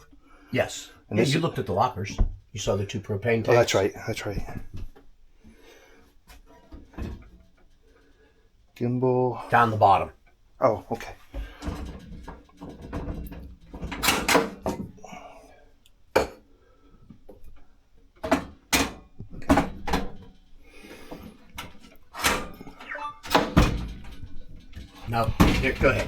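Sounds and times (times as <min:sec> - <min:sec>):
handling and rattling: 0:11.2 - 0:15.0, 0:17.2 - 0:26.0
wooden lockers knocking shut: 0:23.2 - 0:26.0.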